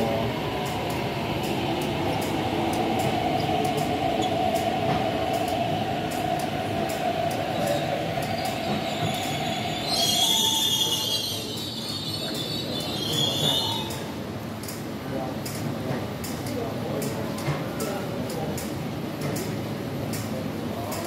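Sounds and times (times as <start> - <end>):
electric train running hum: 0.0 - 21.0
high-pitched brake squeal: 7.6 - 14.1.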